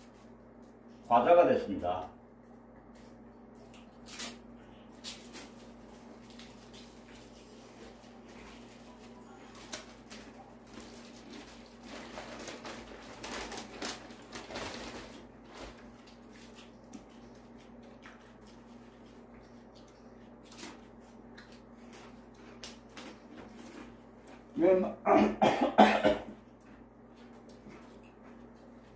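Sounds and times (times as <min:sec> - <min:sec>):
person crunching crisp rice: 0:03.0 - 0:24.6.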